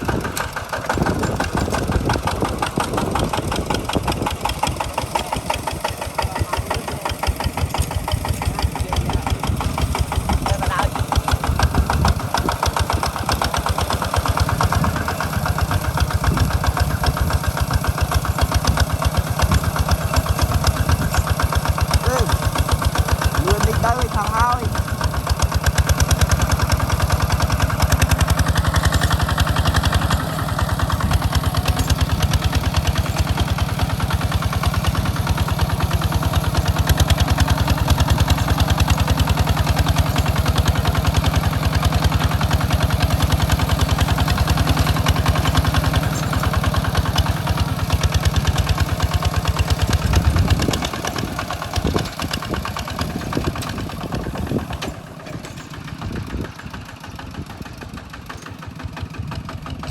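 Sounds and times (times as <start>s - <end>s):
tractor engine chugging: 0.0s - 59.9s.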